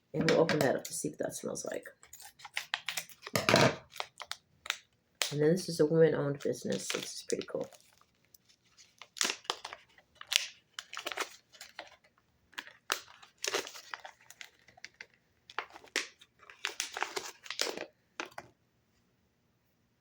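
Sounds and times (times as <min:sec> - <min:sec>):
packaging rustling: 0:02.0 - 0:04.9, 0:06.3 - 0:18.5.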